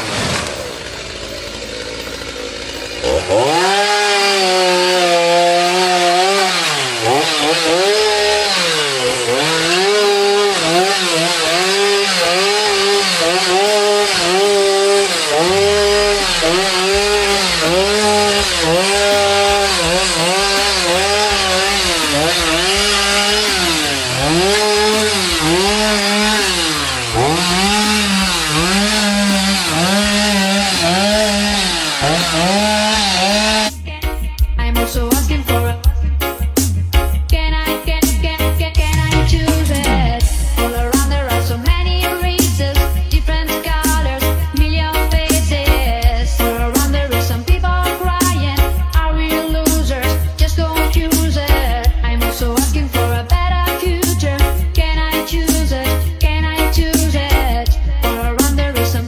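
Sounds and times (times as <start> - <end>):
chainsaw cutting wood: 0.0 - 34.1, 36.5 - 59.0.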